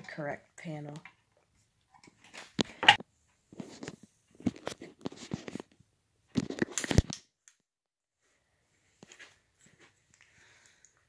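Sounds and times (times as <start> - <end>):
hands handling small parts: 6.4 - 7.6.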